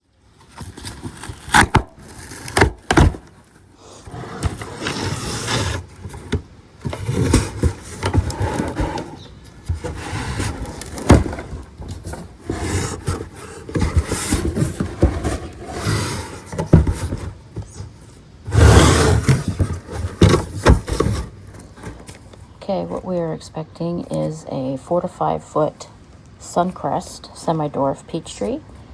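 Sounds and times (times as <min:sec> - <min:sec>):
cardboard box scraping and tearing: 0:00.5 - 0:22.1.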